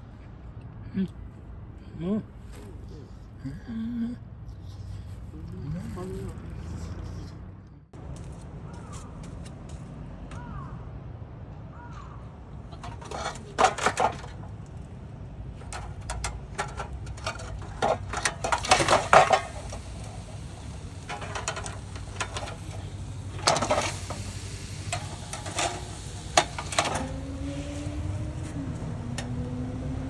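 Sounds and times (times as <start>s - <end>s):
cookware and utensils clattering: 12.7s - 14.5s, 15.6s - 27.8s.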